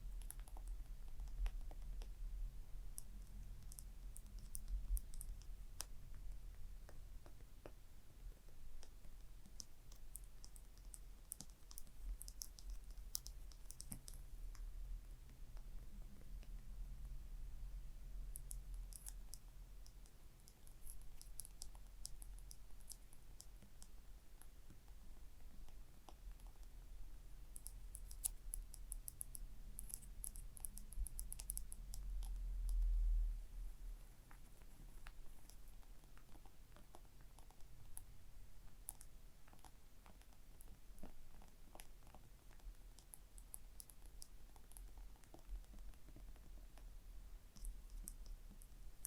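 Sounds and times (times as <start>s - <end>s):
tapping and scratching clicks: 0.0s - 2.2s, 8.4s - 14.7s, 18.3s - 26.8s, 27.4s - 32.9s, 34.2s - 49.0s
faint low hum: 0.0s - 49.0s.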